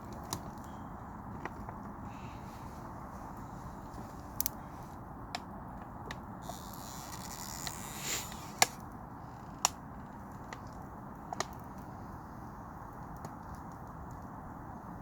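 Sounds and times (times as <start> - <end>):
fire burning with low rush: 0.0 - 15.0
fire crackles: 0.0 - 15.0.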